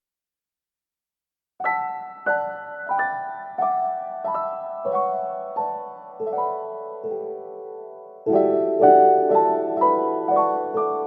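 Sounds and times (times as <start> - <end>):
soft piano chords: 1.6 - 11.0.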